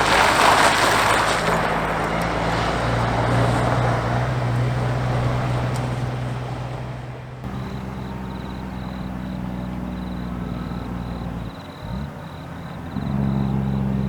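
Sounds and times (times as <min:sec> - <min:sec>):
diesel engine brake drone: 0:00.0 - 0:14.0.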